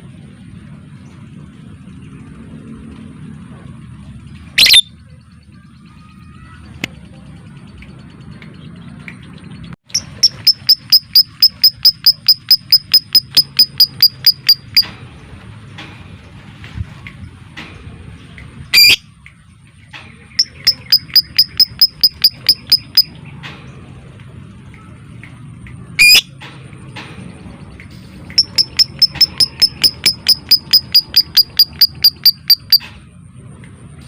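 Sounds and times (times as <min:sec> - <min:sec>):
rapid bird chirps: 0:04.5 - 0:14.8, 0:20.3 - 0:23.2, 0:28.3 - 0:32.8
bird screech: 0:04.6 - 0:04.9.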